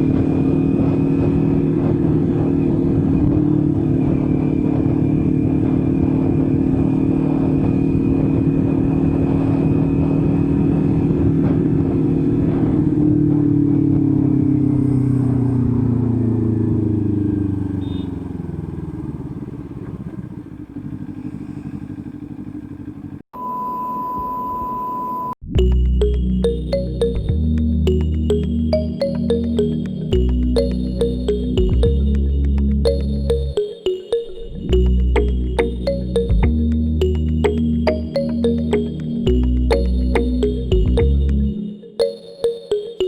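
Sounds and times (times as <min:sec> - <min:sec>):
motorcycle engine running: 0:16.7 - 0:23.2.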